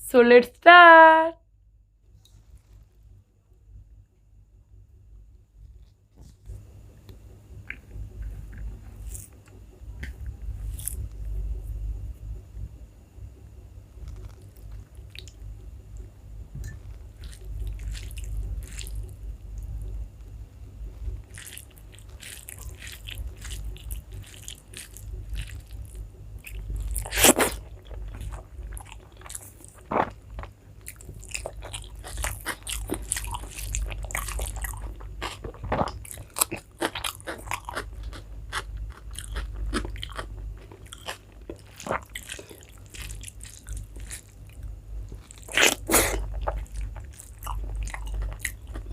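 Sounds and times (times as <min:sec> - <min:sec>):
person chewing food: 0:07.6 - 0:11.2, 0:13.9 - 0:16.0, 0:16.6 - 0:48.9.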